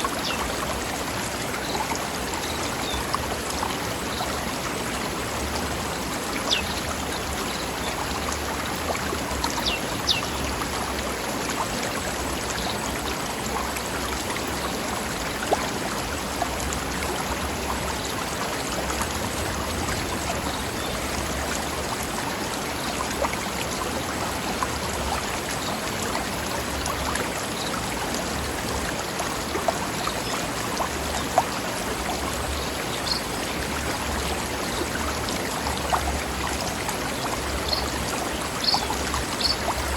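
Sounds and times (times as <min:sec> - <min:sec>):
stream rushing over rocks: 0:00.0 - 0:39.9
water splashes: 0:00.0 - 0:39.9
high water plinks: 0:26.7 - 0:39.9.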